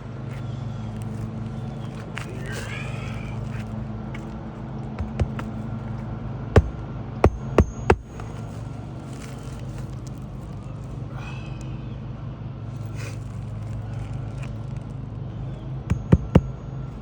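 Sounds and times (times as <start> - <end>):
steady low hum: 0.0 - 17.0
hammer striking roofing nails: 5.0 - 5.6, 6.6 - 8.4, 15.9 - 16.6.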